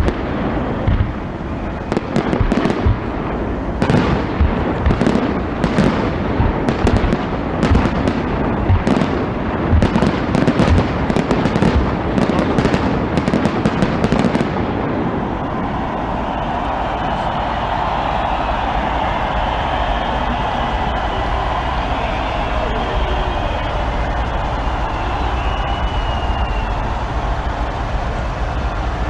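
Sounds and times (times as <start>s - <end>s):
fireworks bangs and crackles: 0.0s - 29.0s
steady noise: 0.0s - 29.0s.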